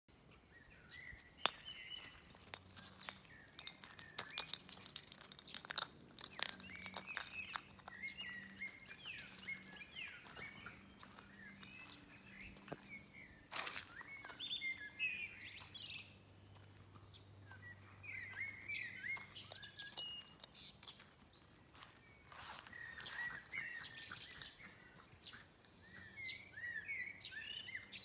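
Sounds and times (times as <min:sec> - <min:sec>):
small birds chirping: 0:00.1 - 0:28.0.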